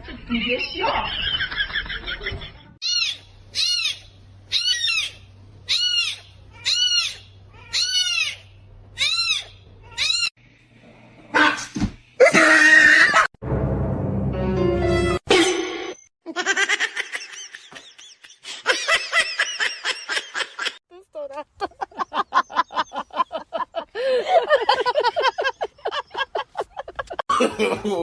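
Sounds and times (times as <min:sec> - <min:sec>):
animal harsh cries: 0:02.8 - 0:10.3, 0:11.3 - 0:13.3
animal high-pitched calls: 0:02.8 - 0:10.3
music: 0:13.4 - 0:15.2.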